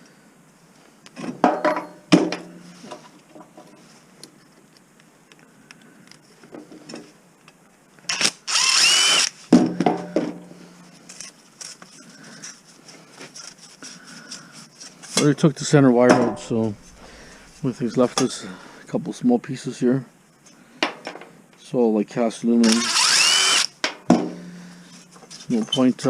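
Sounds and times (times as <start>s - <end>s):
handheld power tool running: 8.1s - 9.4s, 22.6s - 23.7s.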